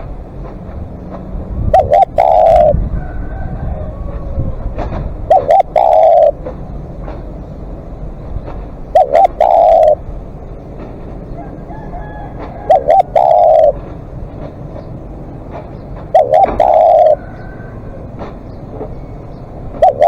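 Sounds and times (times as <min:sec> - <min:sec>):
dove cooing: 0:01.7 - 0:06.6, 0:08.8 - 0:10.1, 0:11.5 - 0:14.0, 0:16.1 - 0:18.0, 0:19.7 - 0:20.0.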